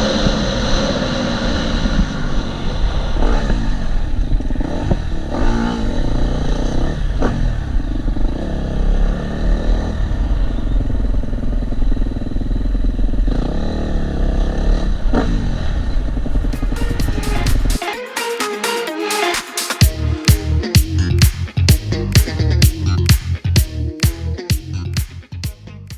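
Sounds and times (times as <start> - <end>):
motocross engine revving: 4.4 - 10.4.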